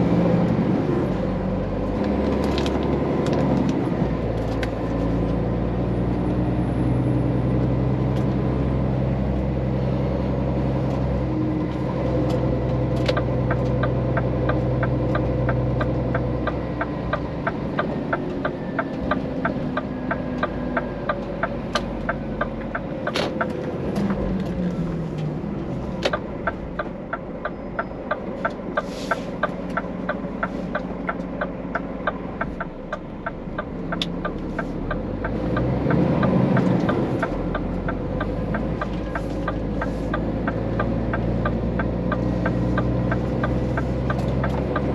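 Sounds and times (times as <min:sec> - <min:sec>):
truck engine running: 0:00.0 - 0:44.9
even ticking clicks: 0:13.0 - 0:24.6, 0:26.0 - 0:44.9.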